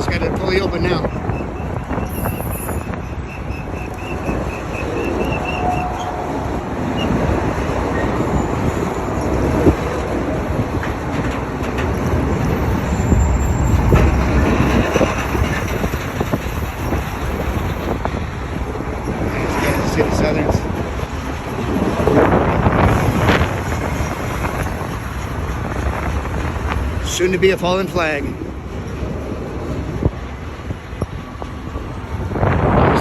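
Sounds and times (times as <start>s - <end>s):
freight cars rumbling on rails: 0.0s - 33.0s
wheel squeals: 0.9s - 18.0s.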